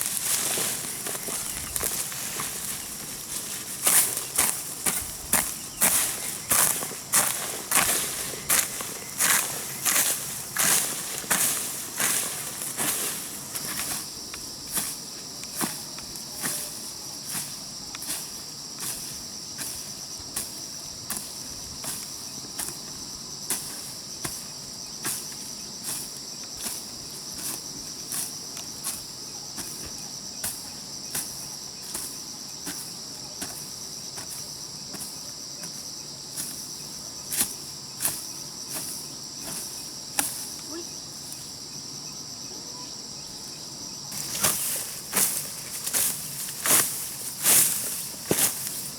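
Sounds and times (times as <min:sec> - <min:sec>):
hoe chopping into soil: 0:00.0 - 0:14.1, 0:37.3 - 0:40.6, 0:44.1 - 0:48.9
insects droning: 0:00.0 - 0:48.9.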